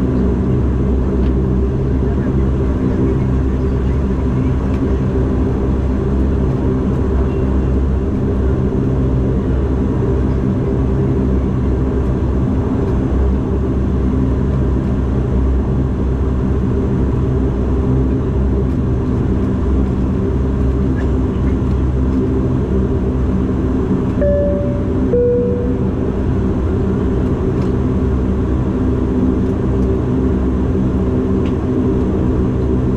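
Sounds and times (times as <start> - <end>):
turboprop cabin drone: 0.0 - 32.9.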